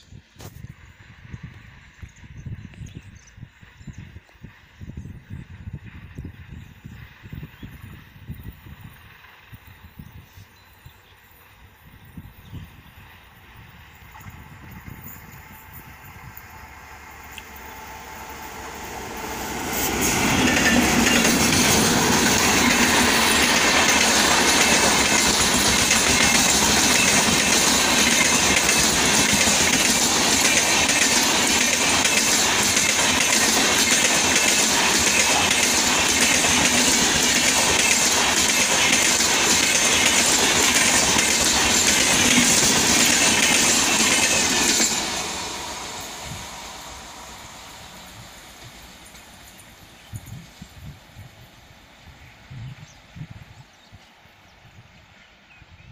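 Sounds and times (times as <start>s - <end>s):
train passing at high speed: 0.0s - 55.9s
wheels clacking over rail joints: 18.3s - 46.2s.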